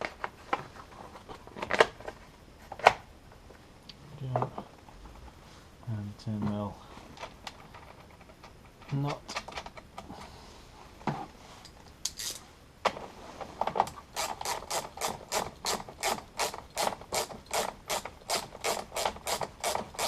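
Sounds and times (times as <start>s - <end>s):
ratchet wrench clicking: 14.2s - 20.0s.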